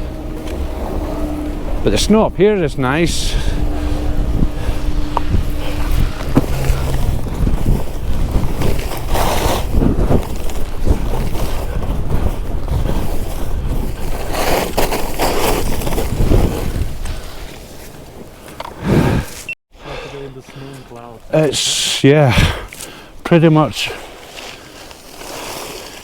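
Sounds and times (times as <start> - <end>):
wind buffeting microphone: 0.0 - 19.4
skis scraping over snow: 0.0 - 19.6, 23.5 - 26.0.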